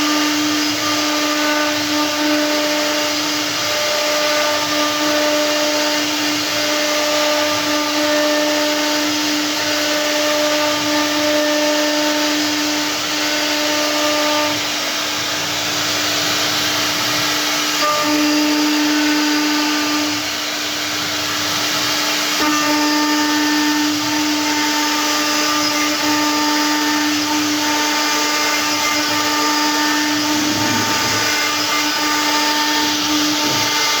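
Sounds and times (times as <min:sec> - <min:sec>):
router spindle motor: 0:00.0 - 0:34.0
stone cutting grinding hiss: 0:27.0 - 0:34.0.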